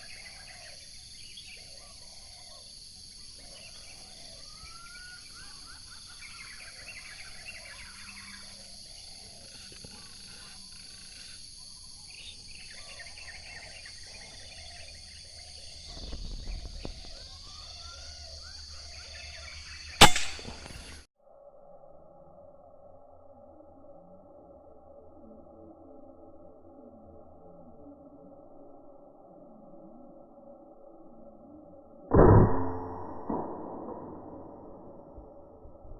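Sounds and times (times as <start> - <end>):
insects buzzing: 0.0 - 21.1
air rifle shot: 20.0 - 21.0.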